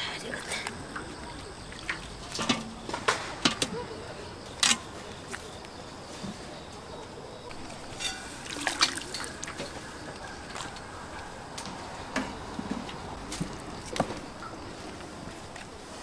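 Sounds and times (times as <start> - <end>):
liquid sloshing: 7.8 - 9.8
utensils and dishes clinking: 7.9 - 9.8.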